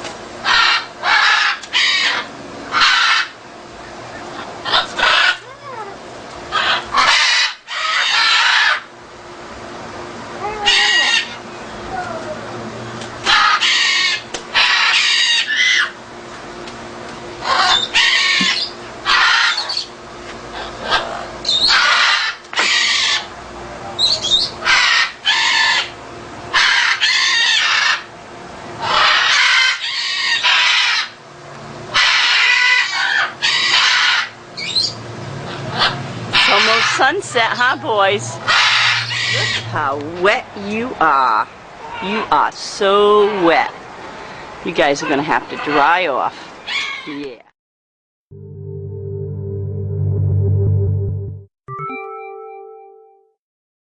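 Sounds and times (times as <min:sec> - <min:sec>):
macaws squawking: 0:00.4 - 0:03.4, 0:04.2 - 0:08.9, 0:10.4 - 0:11.4, 0:13.2 - 0:16.0, 0:17.4 - 0:23.3, 0:24.0 - 0:28.1, 0:28.8 - 0:31.2, 0:31.9 - 0:43.7, 0:44.8 - 0:47.4.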